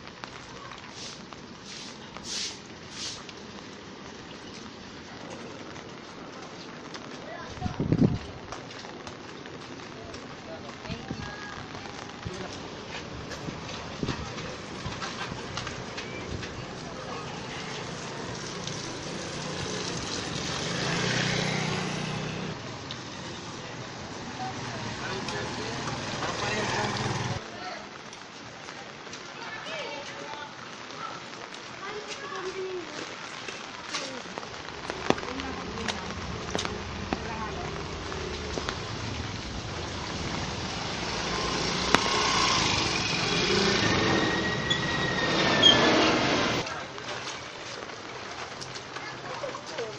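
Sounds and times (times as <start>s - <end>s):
street hiss: 0.0s - 4.9s, 33.9s - 46.8s
steady hiss: 0.9s - 3.4s
vehicle engine passing: 17.3s - 22.6s, 35.1s - 46.6s.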